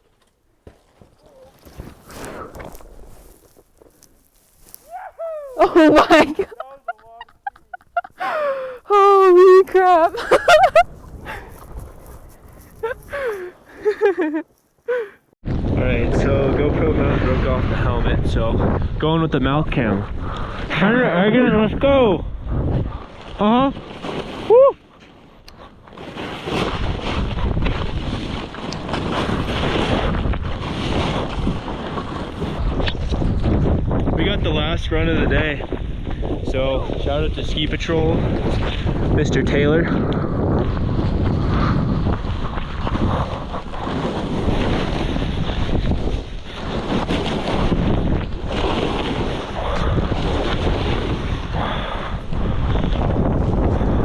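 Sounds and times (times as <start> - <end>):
skis hissing through powder snow: 1.6 - 8.8, 9.4 - 15.1
wind rushing over microphone: 4.0 - 14.0, 14.9 - 24.7, 26.2 - 54.0.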